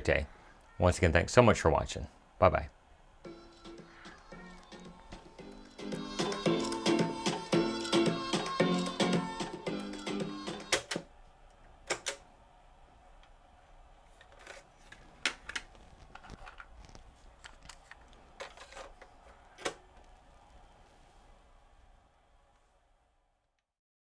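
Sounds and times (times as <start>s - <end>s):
music: 3.2s - 11.0s.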